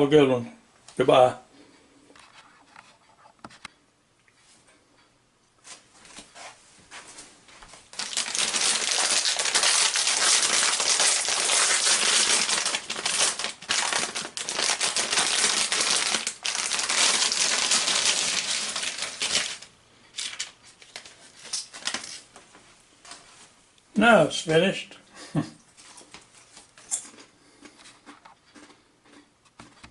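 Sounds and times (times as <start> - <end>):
crinkly packaging crumpled: 7.9 - 22.3.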